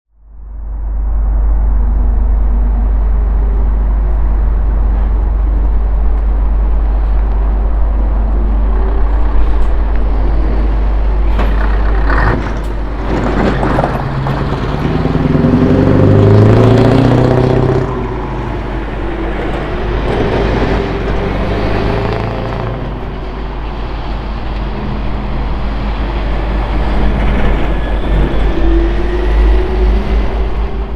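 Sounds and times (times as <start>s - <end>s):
truck engine idling and revving: 1.8s - 26.0s.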